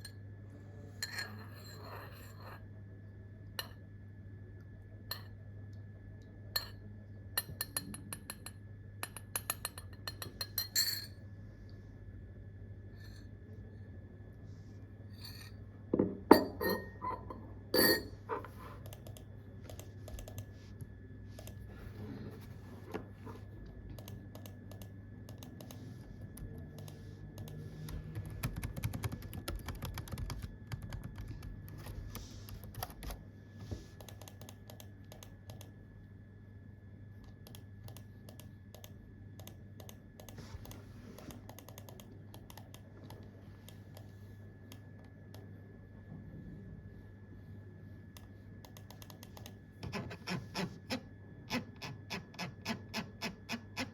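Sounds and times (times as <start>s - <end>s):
faint steady hum: 0.0s - 53.9s
computer keyboard typing: 18.8s - 20.5s, 23.9s - 33.2s, 34.0s - 35.7s, 37.4s - 44.1s, 48.6s - 49.6s.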